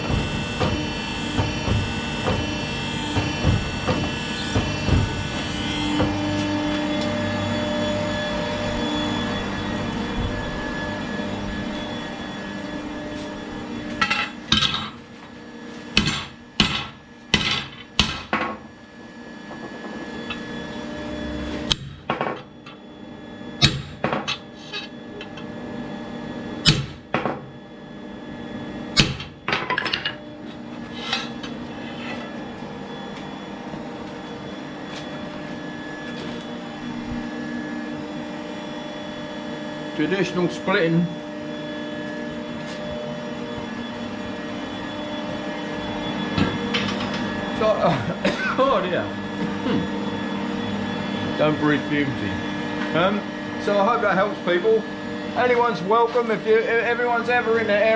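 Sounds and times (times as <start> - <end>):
steady machine hum: 0.0 - 57.9.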